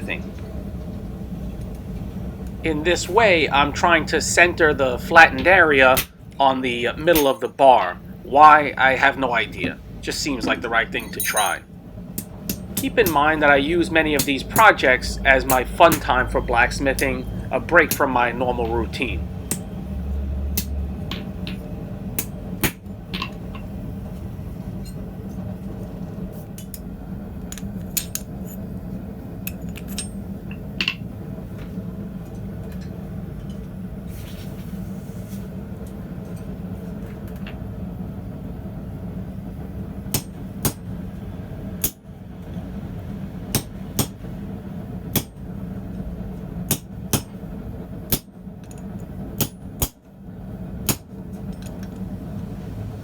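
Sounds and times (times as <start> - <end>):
hammer striking metal on anvil: 7.1 - 7.5, 11.0 - 11.6
low hum: 11.0 - 12.0.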